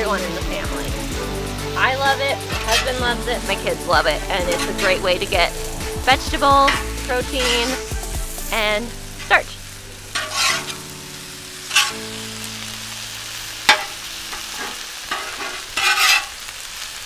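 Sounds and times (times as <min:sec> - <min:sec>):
food sizzling on a griddle: 0:00.0 - 0:17.0
metal spatula scraping steel: 0:02.0 - 0:10.9, 0:11.6 - 0:12.3, 0:13.7 - 0:16.5.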